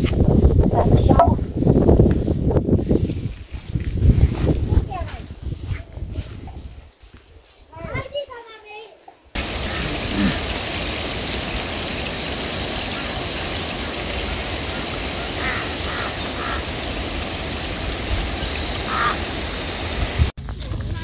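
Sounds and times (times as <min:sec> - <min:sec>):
rushing water: 0:09.4 - 0:20.3.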